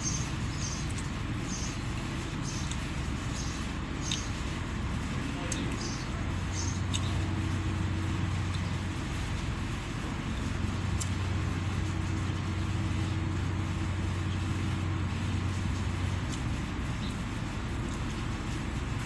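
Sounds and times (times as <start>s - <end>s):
low machine hum: 0.0s - 19.0s
faint clicks: 2.4s - 4.4s, 6.6s - 7.2s.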